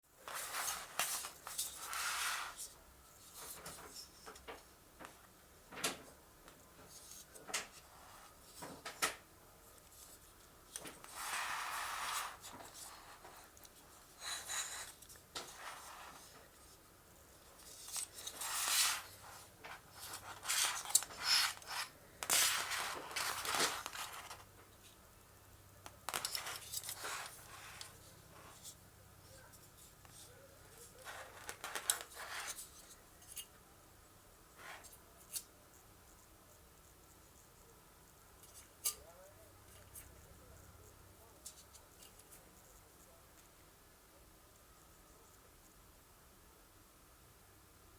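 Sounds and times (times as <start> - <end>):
rustling: 6.8 - 33.5.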